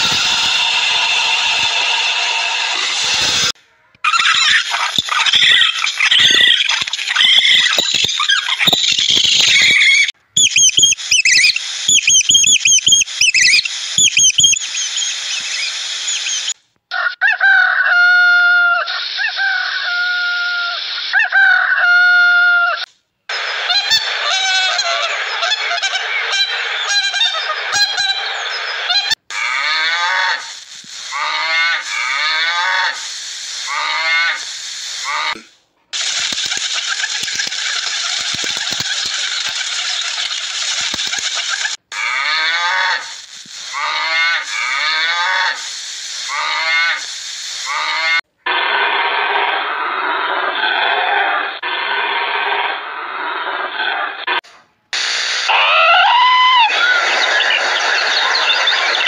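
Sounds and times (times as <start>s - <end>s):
high squeaky animal calls: 0.0s - 17.1s, 23.5s - 54.3s, 55.5s - 59.0s
rapid falling animal calls: 0.0s - 17.8s, 36.0s - 54.3s, 55.5s - 59.0s.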